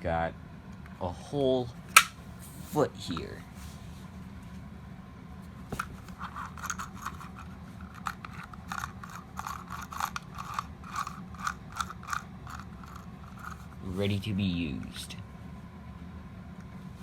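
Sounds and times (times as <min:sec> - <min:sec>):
steady low hum: 0:00.0 - 0:17.0
plastic toy parts clicking and scraping: 0:05.8 - 0:13.8.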